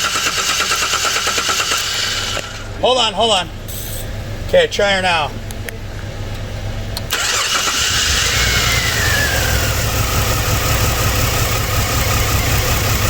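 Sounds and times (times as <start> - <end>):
car engine starting and idling: 0.0 - 13.0
whine: 7.0 - 13.0.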